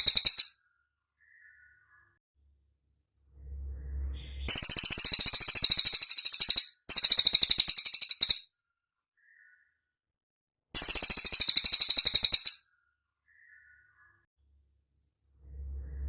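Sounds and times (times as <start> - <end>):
songbird rattling trills: 0.0 - 0.6, 4.4 - 8.4, 10.8 - 12.6.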